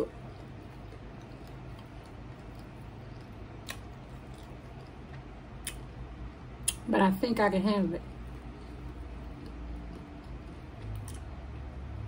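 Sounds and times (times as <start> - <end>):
person chewing: 0.0 - 6.0, 8.0 - 11.4
low background hum: 0.0 - 12.0.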